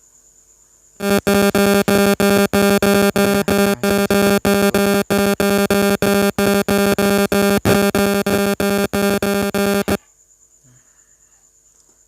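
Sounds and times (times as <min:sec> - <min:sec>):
pulsing buzzy synth music: 0:01.0 - 0:10.0.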